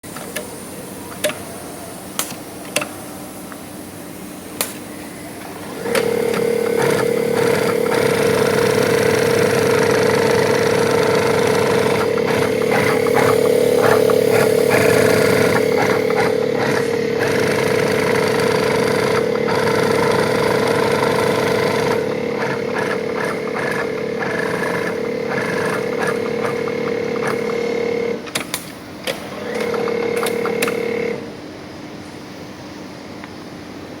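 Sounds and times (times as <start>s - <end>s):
sharp clicks: 2.2s - 2.9s, 28.2s - 30.9s
sewing machine whining: 4.9s - 28.2s, 29.1s - 31.3s.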